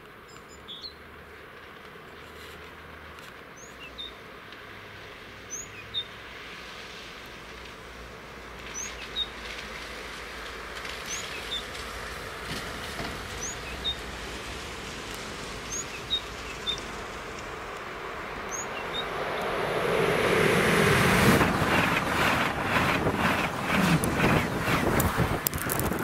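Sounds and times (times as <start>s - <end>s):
high-speed train passing: 6.2s - 26.0s
train wheels clattering: 11.7s - 14.6s, 20.8s - 26.0s.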